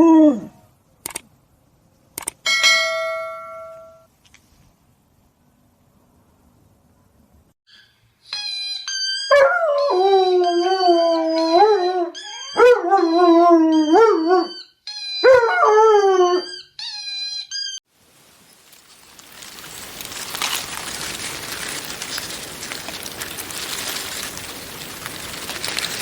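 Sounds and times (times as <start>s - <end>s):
dog howling: 9.3s - 14.5s.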